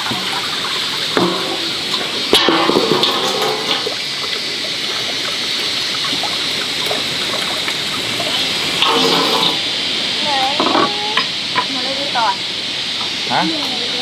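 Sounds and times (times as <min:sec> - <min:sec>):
rushing water: 0:00.0 - 0:14.0
clinks and knocks: 0:01.2 - 0:04.0, 0:08.8 - 0:09.6.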